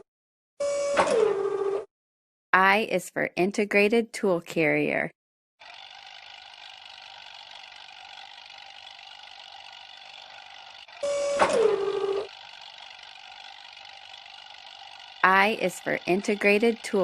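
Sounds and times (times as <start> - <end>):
machine whirring: 5.6 - 17.0
whine falling in pitch: 5.6 - 17.0.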